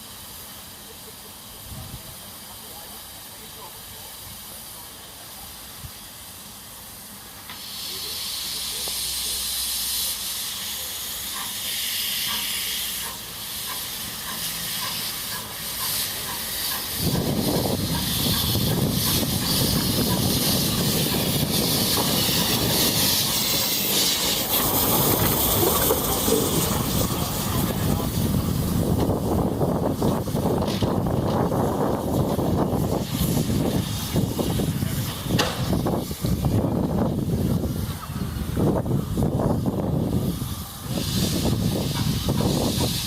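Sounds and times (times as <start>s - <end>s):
steam hissing: 0.0s - 43.0s.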